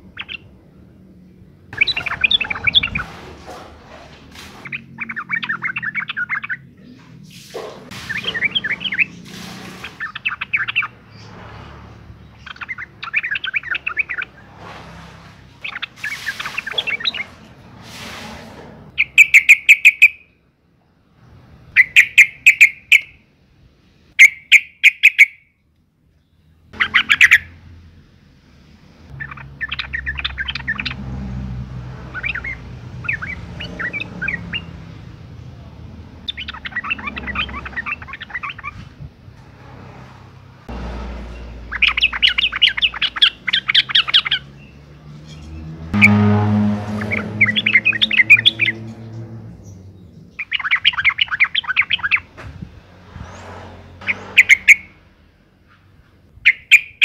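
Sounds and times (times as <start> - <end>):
bird chattering call: 1.8 - 3.1, 19.0 - 20.2, 21.8 - 23.1, 24.2 - 25.4, 41.6 - 44.5.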